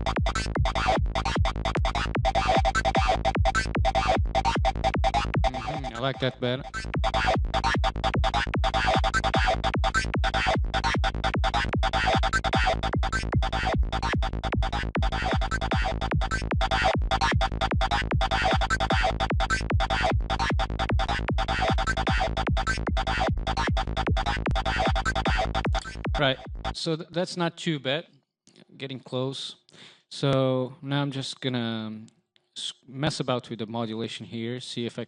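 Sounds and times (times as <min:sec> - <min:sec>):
steady low bass tone: 0:00.0 - 0:26.8
synthesizer lead chopped notes: 0:00.0 - 0:26.8.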